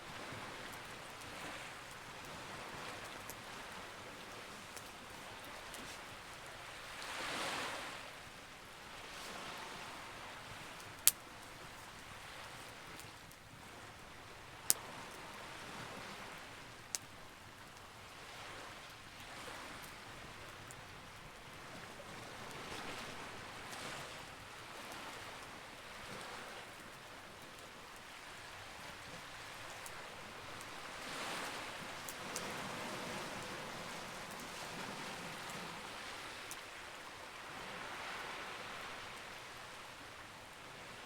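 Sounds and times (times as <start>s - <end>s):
waves rushing: 0.0s - 8.3s, 28.2s - 40.2s
campfire popping: 10.6s - 13.5s.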